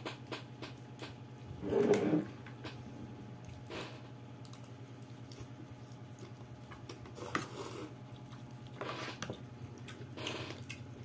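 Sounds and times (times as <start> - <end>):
electric fan hum: 0.0 - 11.0
wet slurping and chewing: 1.4 - 11.0.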